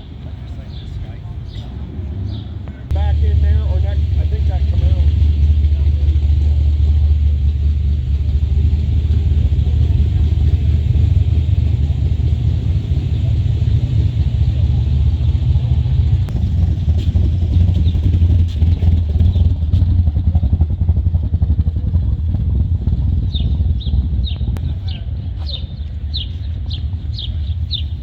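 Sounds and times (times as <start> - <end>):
vehicle engine idling: 0.0 - 28.0.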